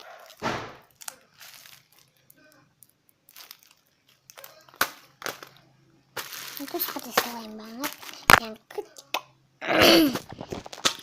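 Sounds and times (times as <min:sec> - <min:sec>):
paper squishy crinkling: 0:00.0 - 0:05.6, 0:06.2 - 0:09.1.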